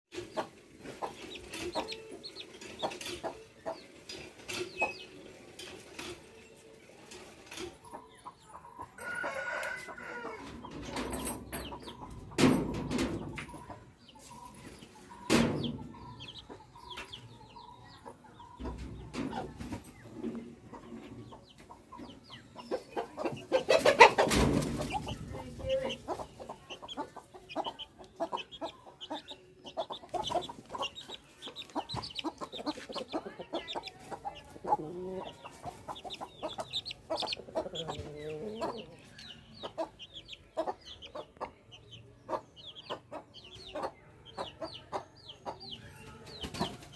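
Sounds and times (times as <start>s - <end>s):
chickens clucking: 0.1s - 46.9s
rooster crowing: 9.0s - 10.4s.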